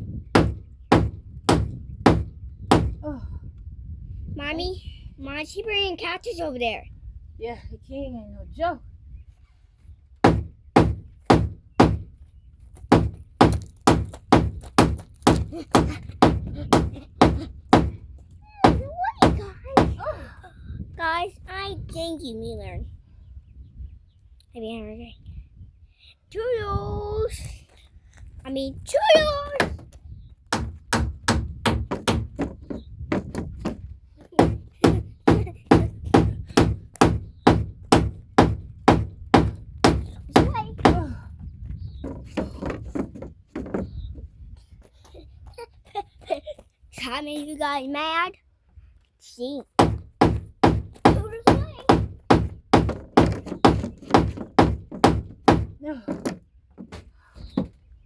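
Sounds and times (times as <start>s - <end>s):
hammer blows on wood: 0.3s - 3.0s, 10.2s - 12.2s, 12.9s - 20.0s, 29.2s - 33.8s, 34.4s - 41.1s, 49.8s - 56.3s.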